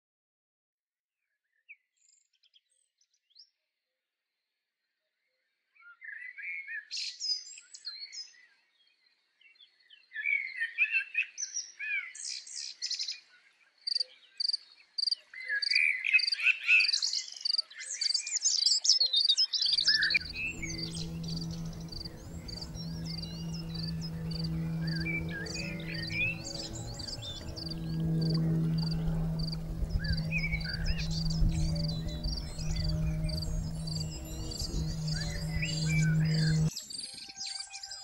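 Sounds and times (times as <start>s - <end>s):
birds chirping and trilling: 19.4s - 38.0s
low steady hum: 19.9s - 36.7s.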